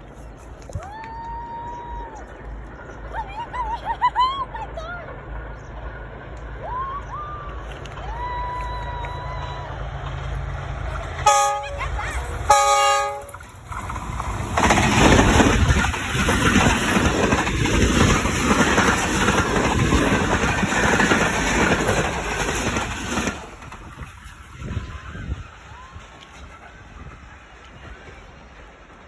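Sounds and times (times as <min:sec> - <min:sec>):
train passing close by: 0:00.0 - 0:29.0
train horn blasts: 0:11.2 - 0:13.5.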